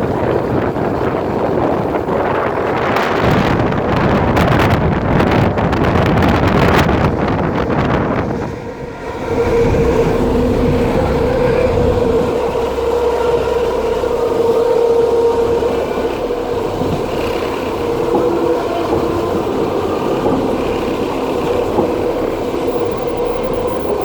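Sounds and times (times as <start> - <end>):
train wheels rumbling on rails: 0.1 - 23.3
steady humming tone: 8.2 - 24.0.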